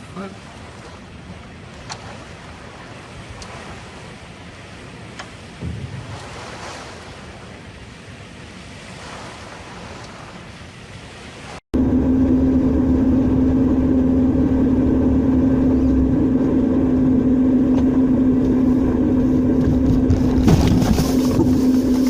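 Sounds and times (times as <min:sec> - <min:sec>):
engine running steadily: 0:11.8 - 0:22.0.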